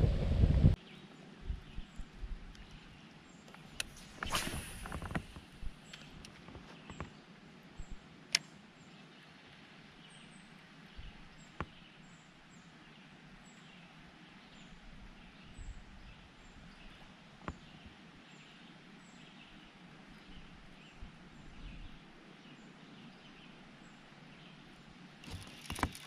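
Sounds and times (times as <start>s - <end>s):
outdoor background noise: 0.0s - 26.0s
faint bird chirps: 10.0s - 24.9s.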